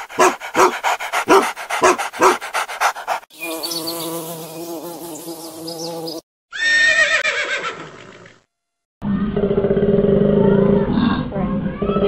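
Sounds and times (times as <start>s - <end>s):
dog panting: 0.0s - 3.3s
bumblebee buzzing: 1.3s - 6.2s.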